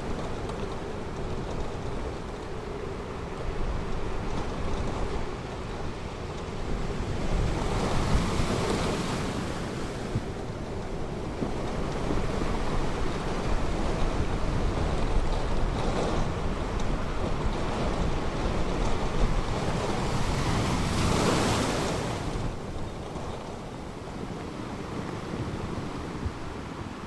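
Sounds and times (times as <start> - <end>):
wind buffeting microphone: 0.0 - 27.0
surf washing onto beach: 18.7 - 22.8.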